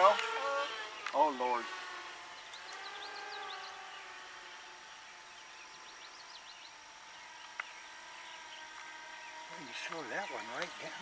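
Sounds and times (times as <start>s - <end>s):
model airplane motor whine: 0.0s - 11.0s.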